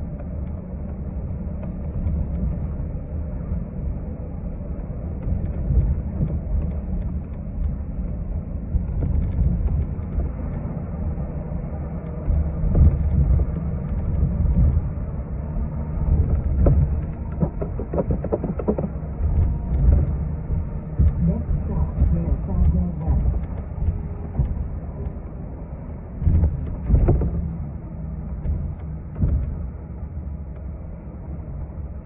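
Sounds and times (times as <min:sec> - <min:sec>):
bus engine and road noise: 0:00.0 - 0:32.0
short rattles or knocks: 0:16.3 - 0:24.6.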